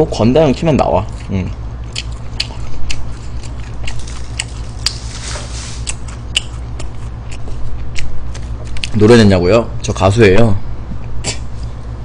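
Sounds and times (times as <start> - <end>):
low hum: 0.0 - 12.0
chewing french fries: 0.6 - 9.1
wrapper paper rustling: 4.0 - 5.8.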